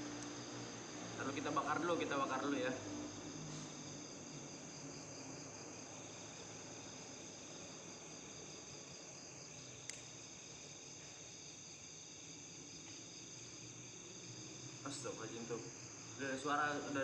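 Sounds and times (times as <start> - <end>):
crickets trilling: 0.0 - 17.0
sharp click: 9.8 - 10.1.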